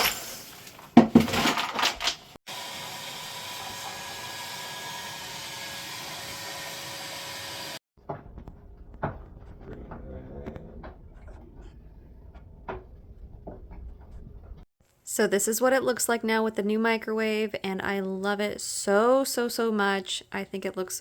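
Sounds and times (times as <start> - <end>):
hard objects clattering: 0.0 - 2.3.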